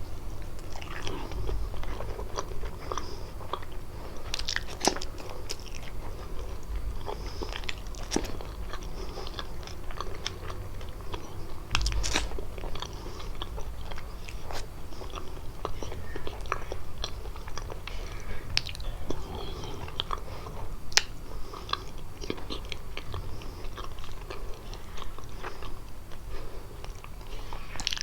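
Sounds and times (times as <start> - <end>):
crunchy pastry chewing: 0.0 - 28.0
low thuds from mouth: 11.7 - 12.5.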